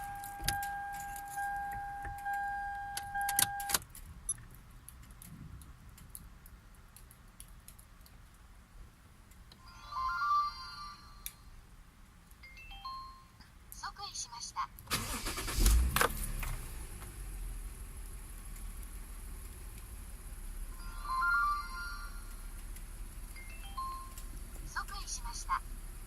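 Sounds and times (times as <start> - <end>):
keys jangling and clicking: 0.0 - 4.4.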